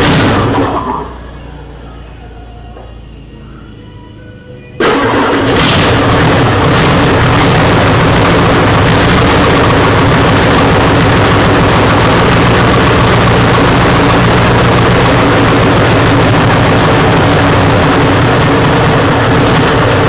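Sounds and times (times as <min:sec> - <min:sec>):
engine idling: 0:04.8 - 0:20.0.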